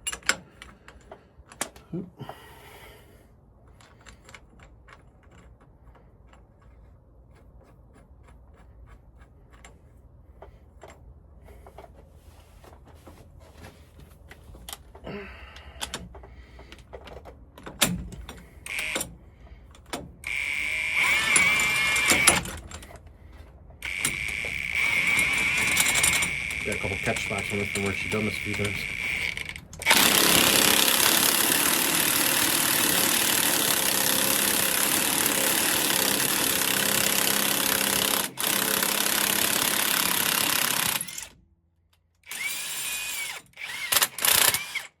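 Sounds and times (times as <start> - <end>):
impact wrench bursts: 18.6 - 19.1, 20.2 - 22.5, 23.8 - 41.4, 42.3 - 45.0.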